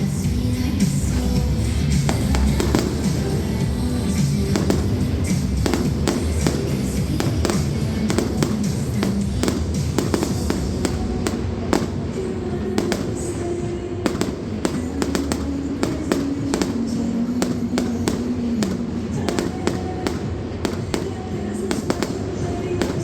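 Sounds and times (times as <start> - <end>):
fireworks bangs and cracks: 0.0 - 23.0
music playing: 0.0 - 23.0.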